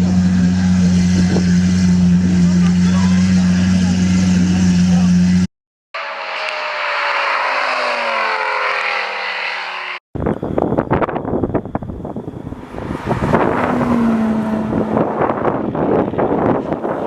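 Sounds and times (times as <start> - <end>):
second engine running: 0.0 - 17.0
steady engine hum: 0.0 - 17.0
wind noise on microphone: 10.2 - 17.0.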